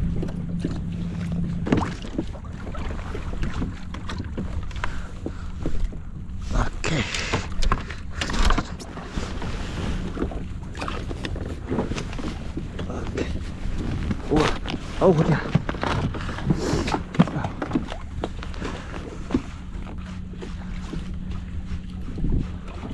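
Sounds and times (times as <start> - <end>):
water slapping hull: 0.0 - 22.9
water splashing: 0.0 - 22.9
wind on microphone: 8.4 - 22.9.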